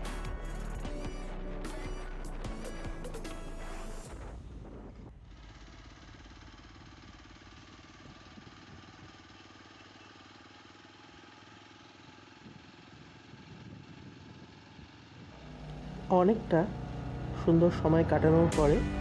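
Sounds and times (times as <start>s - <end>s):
motorcycle engine running: 0.0s - 4.1s, 5.4s - 19.0s
background music: 0.0s - 4.6s, 15.4s - 19.0s.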